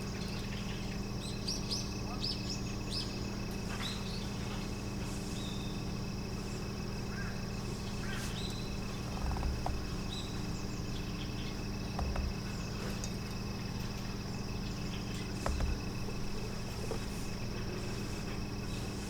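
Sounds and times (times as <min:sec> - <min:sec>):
low steady hum: 0:02.6 - 0:19.0
soft low knocks: 0:08.7 - 0:18.8.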